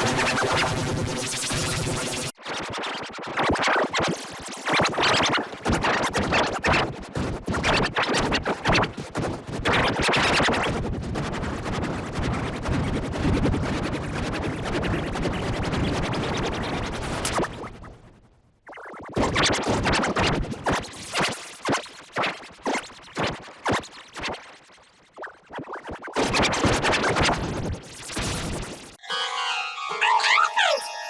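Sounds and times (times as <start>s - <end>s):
distorted stuttering music: 0.0s - 2.3s.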